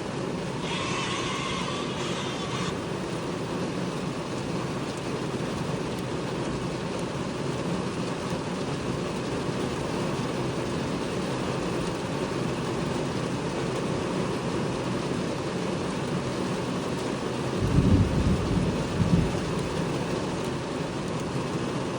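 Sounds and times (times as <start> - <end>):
heavy rain pouring: 0.0 - 21.9
strong wind: 17.6 - 19.8.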